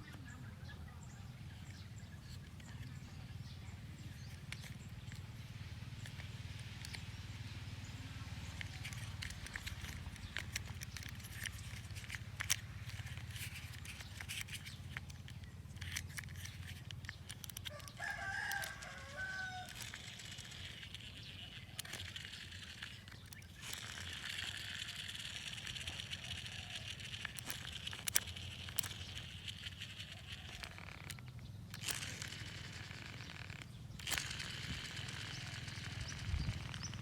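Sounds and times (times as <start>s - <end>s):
steady low hum: 0.0s - 37.0s
rooster crowing: 17.7s - 19.8s.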